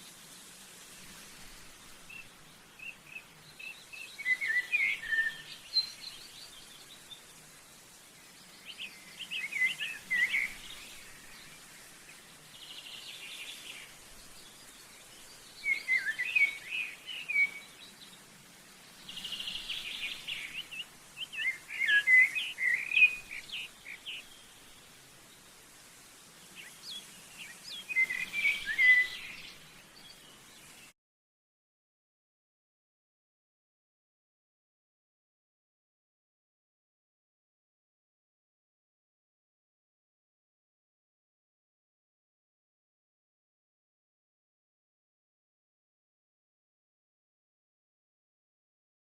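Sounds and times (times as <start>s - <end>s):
small songbird singing: 1.2s - 30.9s.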